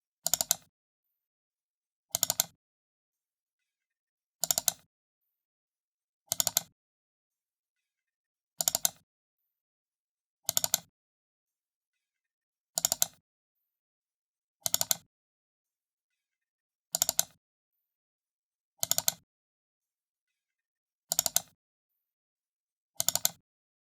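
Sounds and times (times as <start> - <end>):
computer mouse double-clicks: 0.2 - 0.7, 2.1 - 2.6, 4.4 - 4.9, 6.3 - 6.8, 8.6 - 9.0, 10.5 - 10.9, 12.8 - 13.2, 14.6 - 15.1, 16.9 - 17.4, 18.8 - 19.2, 21.1 - 21.6, 23.0 - 23.4.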